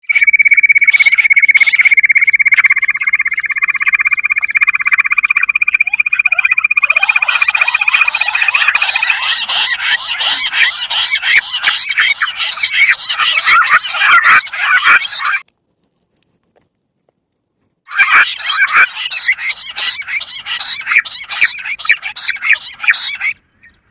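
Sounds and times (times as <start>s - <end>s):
chattering squeaky bird calls: 0.1s - 15.4s, 17.9s - 23.9s
buzzing bird trill: 2.8s - 15.4s, 17.9s - 23.4s.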